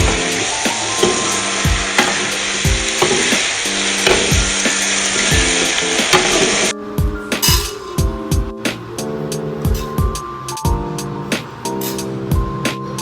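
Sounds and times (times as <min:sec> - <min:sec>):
food sizzling in a pan: 0:00.0 - 0:06.7
background music with steady beat: 0:00.0 - 0:13.0.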